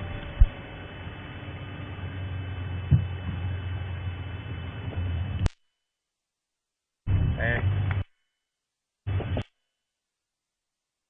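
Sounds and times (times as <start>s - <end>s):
vehicle engine running: 0.0s - 5.5s, 7.1s - 8.1s
low thumps: 0.1s - 0.6s
broadcast noise hiss: 9.1s - 9.6s.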